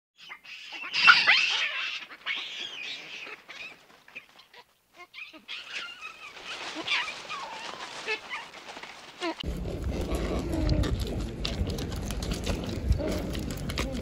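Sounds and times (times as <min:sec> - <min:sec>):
monkeys calling: 0:00.2 - 0:08.5.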